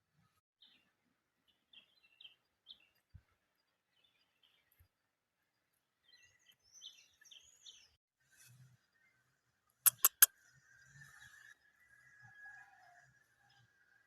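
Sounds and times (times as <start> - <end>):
sharp loud clicks: 9.9 - 10.3.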